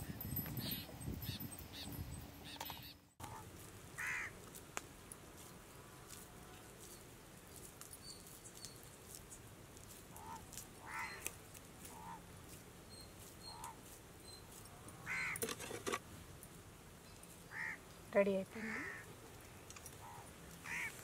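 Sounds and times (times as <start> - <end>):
birds calling: 0.0 - 4.4, 10.0 - 15.5, 17.0 - 21.0.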